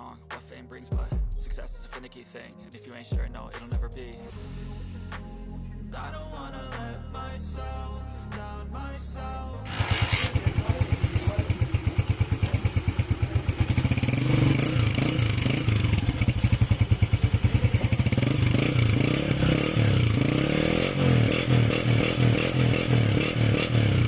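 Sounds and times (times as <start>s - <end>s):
motorcycle engine revving: 9.6s - 24.0s.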